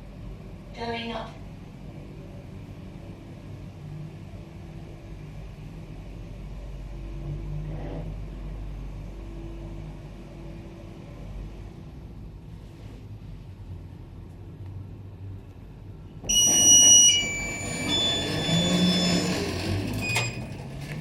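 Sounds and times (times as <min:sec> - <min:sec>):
lift humming: 0:16.2 - 0:21.0
high electronic tones: 0:16.3 - 0:20.4.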